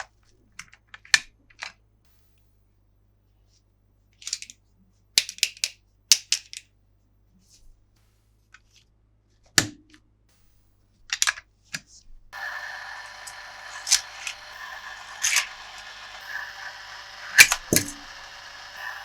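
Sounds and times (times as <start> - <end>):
plastic clicks and snaps: 5.2 - 6.7.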